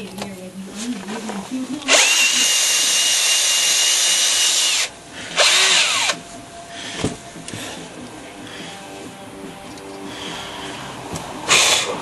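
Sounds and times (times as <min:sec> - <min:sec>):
power drill whining: 0:01.9 - 0:09.0, 0:11.5 - 0:12.0.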